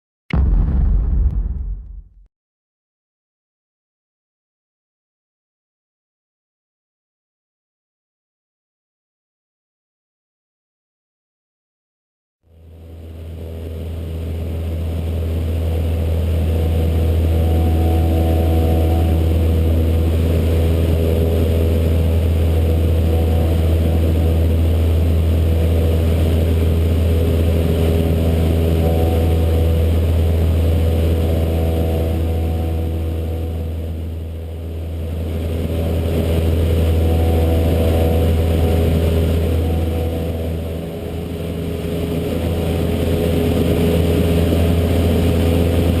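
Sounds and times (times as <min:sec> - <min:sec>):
aircraft engine and propeller drone: 0:12.5 - 0:46.0.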